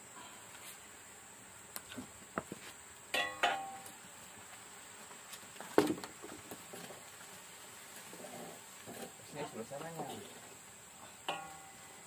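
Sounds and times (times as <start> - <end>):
metal cookware clinking: 3.2 - 3.8, 11.3 - 11.8.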